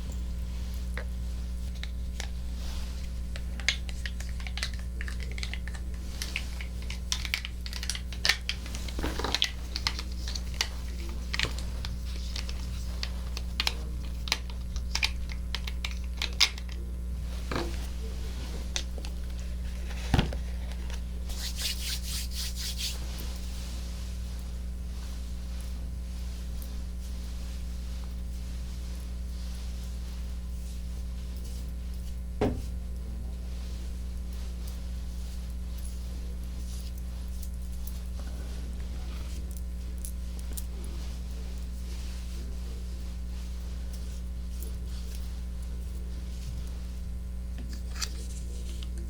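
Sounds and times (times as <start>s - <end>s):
steady low hum: 0.0s - 49.0s
close-up clicks taps and crackles: 3.3s - 16.8s.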